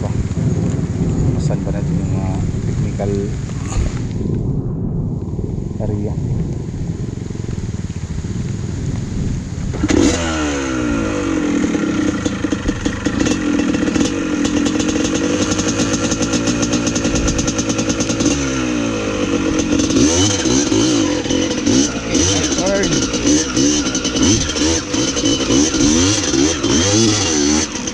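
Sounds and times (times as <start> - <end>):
dirt bike engine revving: 3.6 - 4.2, 9.8 - 27.9.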